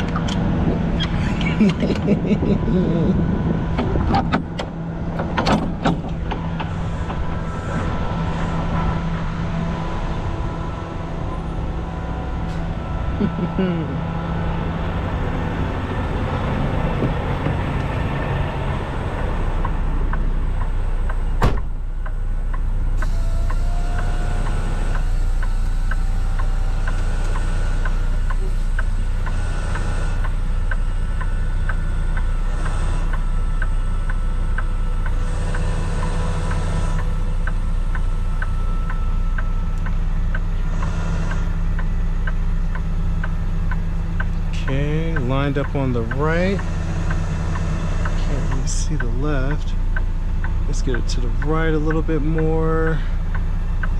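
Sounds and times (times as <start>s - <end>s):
diesel truck engine running: 0.0s - 53.9s
light regular ticking: 25.2s - 53.9s.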